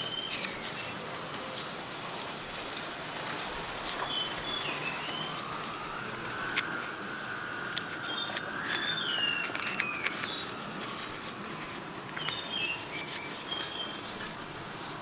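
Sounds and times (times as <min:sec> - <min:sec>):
bird singing whistled notes: 0:00.0 - 0:01.0, 0:04.0 - 0:06.6, 0:07.2 - 0:10.6, 0:12.2 - 0:14.1
leaf crinkling: 0:00.0 - 0:15.0.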